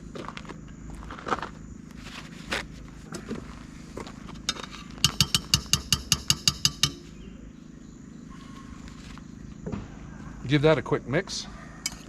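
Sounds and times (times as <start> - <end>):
metal utensil clinking on pot: 4.5 - 7.2.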